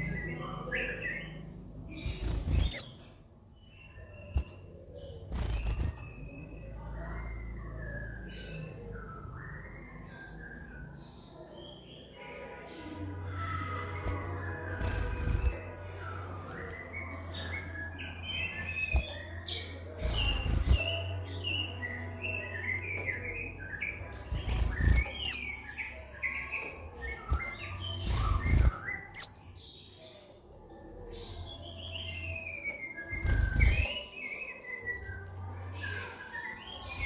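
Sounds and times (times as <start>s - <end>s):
bird twittering chirps: 0.0s - 6.6s, 17.0s - 26.5s, 27.6s - 29.8s
sharp piercing bird notes: 2.6s - 3.2s, 25.2s - 25.9s, 29.2s - 29.6s.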